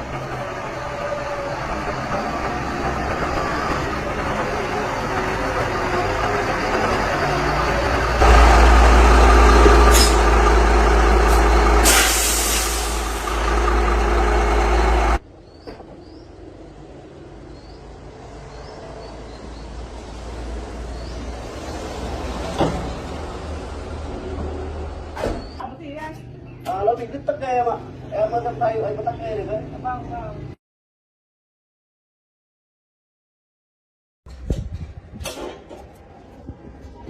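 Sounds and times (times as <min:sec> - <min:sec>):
heavy truck engine running: 0:00.0 - 0:15.2
air brake hiss: 0:11.8 - 0:13.3.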